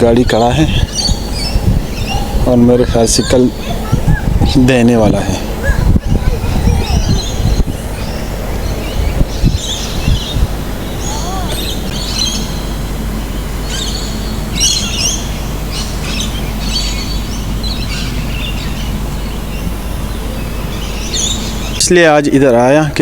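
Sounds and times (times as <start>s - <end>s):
low thumps: 0.0s - 13.6s
birds chirping: 0.0s - 23.0s
steady low rumble: 0.0s - 23.0s.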